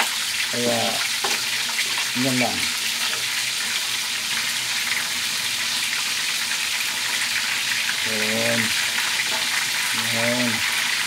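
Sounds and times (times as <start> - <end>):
chicken frying in oil: 0.0 - 11.0.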